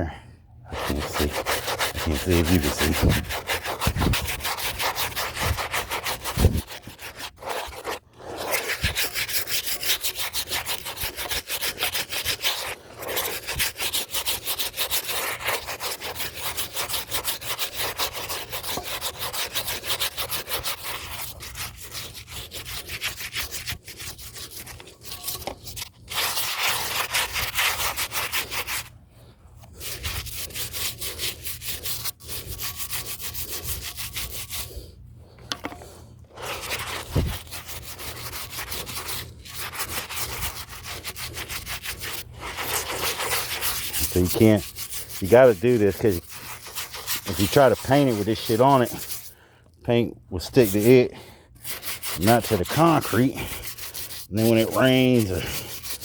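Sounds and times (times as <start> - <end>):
brush scrubbing concrete: 0.7 - 56.0.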